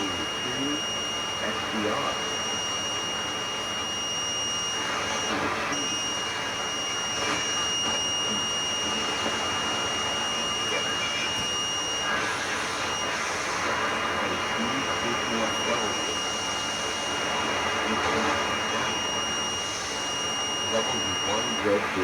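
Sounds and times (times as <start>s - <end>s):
shortwave radio static hiss: 0.0s - 22.0s
steady high whistle: 14.2s - 21.8s.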